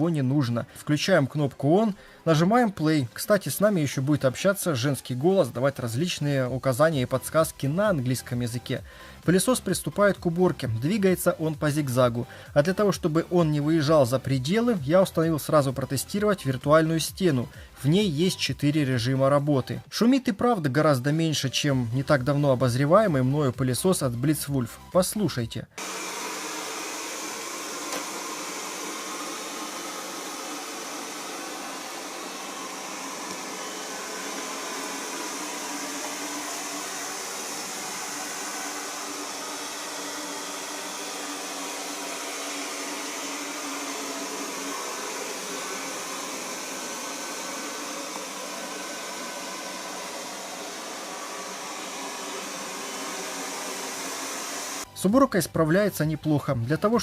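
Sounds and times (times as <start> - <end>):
robot vacuum cleaner running: 25.8 - 54.9.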